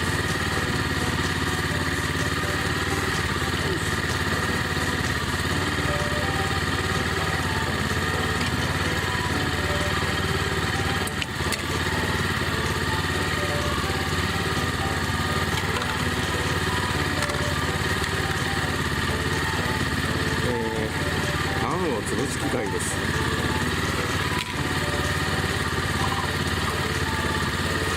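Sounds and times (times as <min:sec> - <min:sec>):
small engine running: 0:00.0 - 0:27.9.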